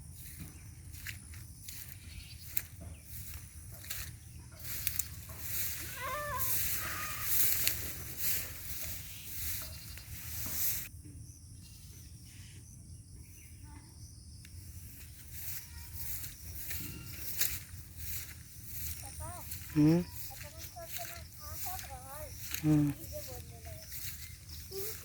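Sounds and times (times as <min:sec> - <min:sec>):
rustling and scuffing: 0:00.0 - 0:10.9, 0:14.8 - 0:25.0.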